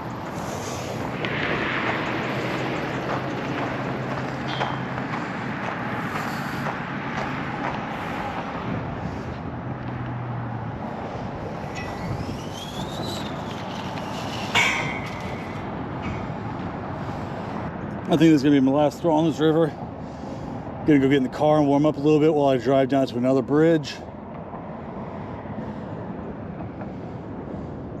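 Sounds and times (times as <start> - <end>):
rising whine: 0.0 - 9.9, 10.5 - 17.1
low hum: 0.0 - 17.9
passing road traffic: 0.0 - 28.0
sharp knock: 14.1 - 16.4.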